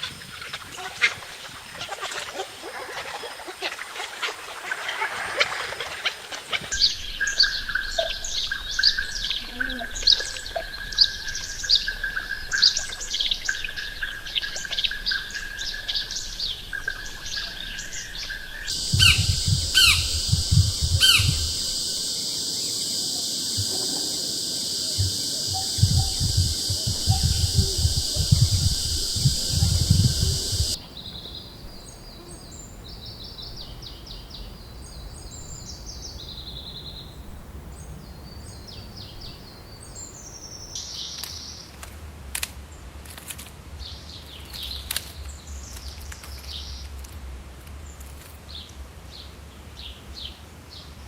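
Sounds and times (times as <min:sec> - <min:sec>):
steady high drone: 0:18.7 - 0:30.8
birds chirping: 0:18.7 - 0:32.6.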